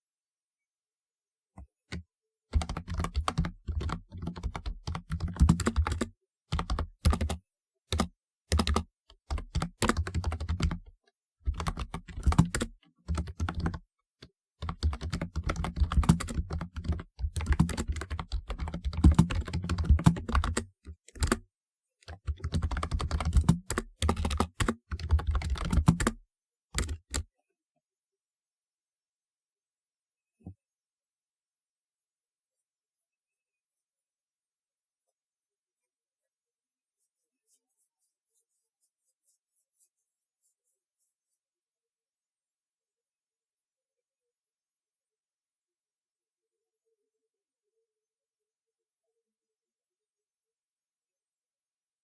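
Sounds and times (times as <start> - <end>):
mechanical keyboard clacking: 2.6 - 7.4, 14.6 - 21.4, 22.1 - 26.2, 26.8 - 27.2.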